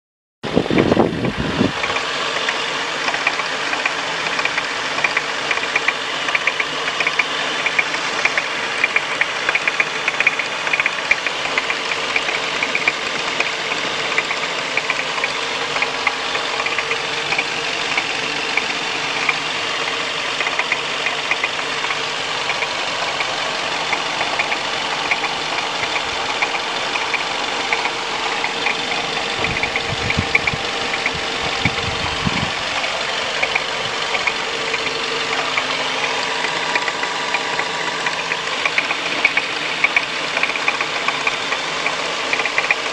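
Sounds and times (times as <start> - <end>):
car engine idling: 0.5 - 42.9
rapid metallic knocking: 20.3 - 42.9.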